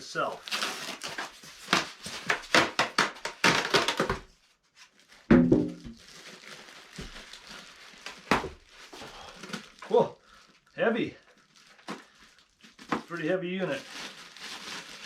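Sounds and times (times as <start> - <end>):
packaging rustling and crackling: 0.2 - 15.0
heavy thunk: 5.3 - 5.9.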